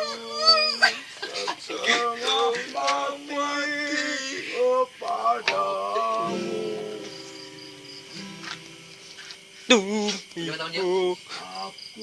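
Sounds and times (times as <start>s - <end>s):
held notes: 5.4s - 9.9s.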